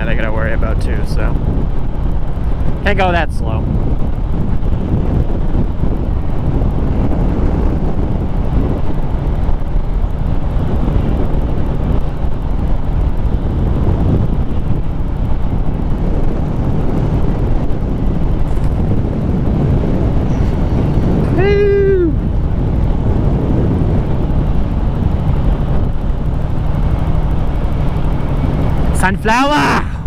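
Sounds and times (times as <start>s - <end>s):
motorcycle engine running: 0.0s - 30.0s
wind buffeting microphone: 0.0s - 30.0s.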